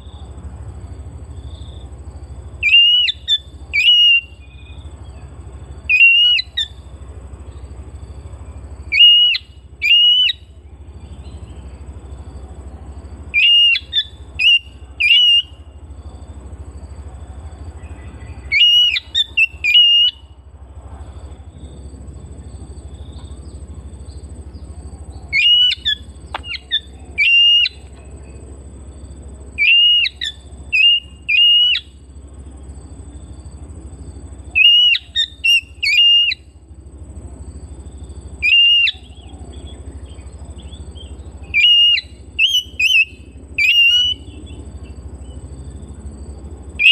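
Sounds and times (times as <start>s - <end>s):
low hum and hiss: 0.0s - 46.9s
bird singing whistled phrases: 2.6s - 4.8s, 5.9s - 6.8s, 8.9s - 11.6s, 13.3s - 15.7s, 17.8s - 20.2s, 25.3s - 27.9s, 29.6s - 32.0s, 34.6s - 36.6s, 38.4s - 44.6s.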